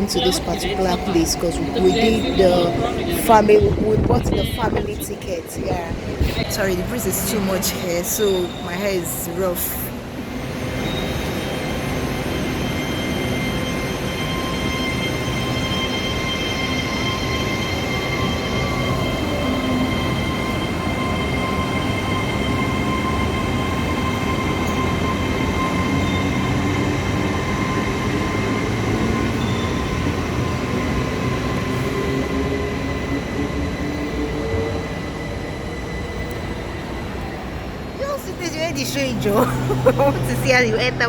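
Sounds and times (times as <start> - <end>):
train whine and rumble: 0.0 - 41.0.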